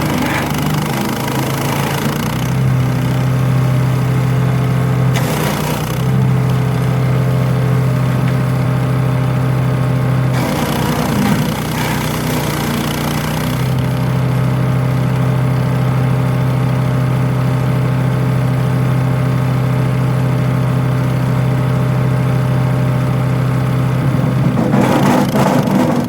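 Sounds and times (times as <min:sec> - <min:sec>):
loud rough noise: 0:00.0 - 0:16.0, 0:22.7 - 0:26.0
petrol engine running: 0:00.0 - 0:19.3.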